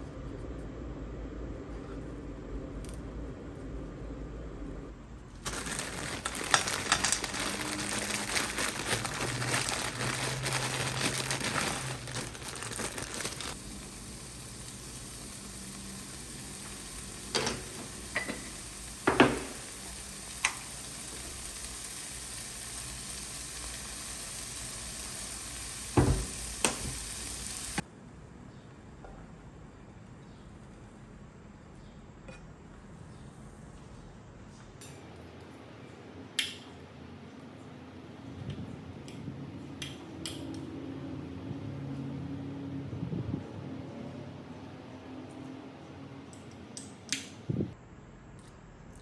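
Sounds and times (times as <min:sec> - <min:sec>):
food sizzling in frying pan: 0:05.5 - 0:27.8.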